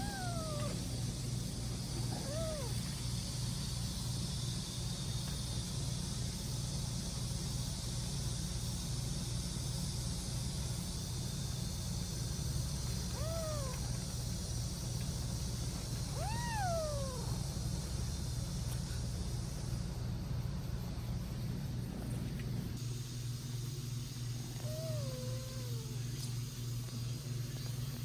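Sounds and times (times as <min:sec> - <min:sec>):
cat meowing: 0:00.0 - 0:00.9, 0:02.0 - 0:02.9, 0:13.1 - 0:14.0, 0:16.1 - 0:17.4, 0:24.6 - 0:26.1
low rumble and hiss: 0:00.0 - 0:28.0.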